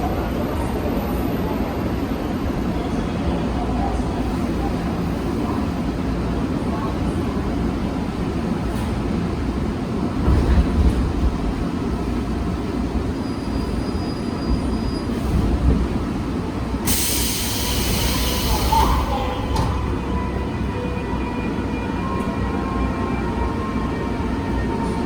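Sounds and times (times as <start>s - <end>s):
train rumbling on track: 0.0s - 25.0s
loud hiss: 16.9s - 19.2s.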